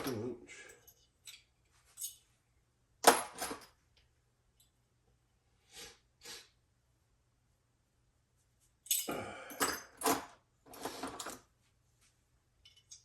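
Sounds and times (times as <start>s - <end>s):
person sniffing: 5.6s - 6.6s.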